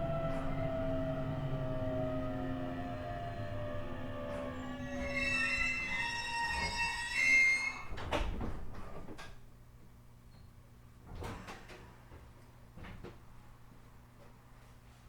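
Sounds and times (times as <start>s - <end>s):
train brakes squealing: 3.3s - 8.1s.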